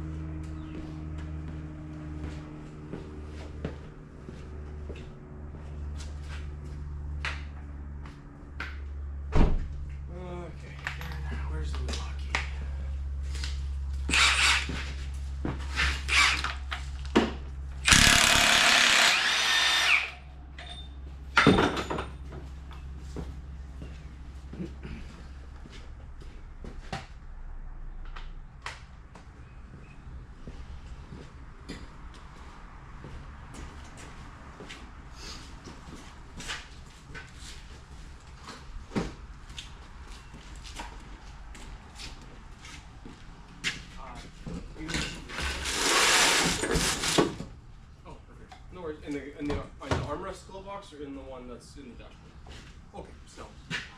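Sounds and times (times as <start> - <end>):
impact wrench whirring: 14.1 - 14.8, 15.8 - 16.7, 17.8 - 20.3, 45.4 - 47.2.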